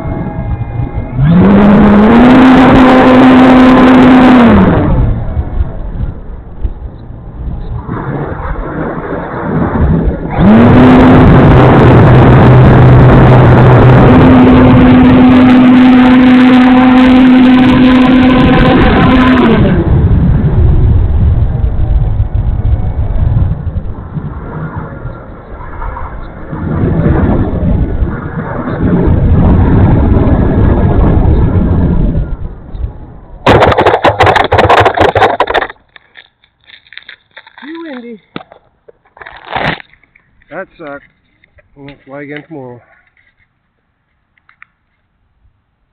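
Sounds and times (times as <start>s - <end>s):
wind buffeting microphone: 0.0s - 42.8s
crackling knocks and rustles: 5.4s - 9.7s, 32.3s - 45.2s
loud rushing noise: 7.2s - 35.8s.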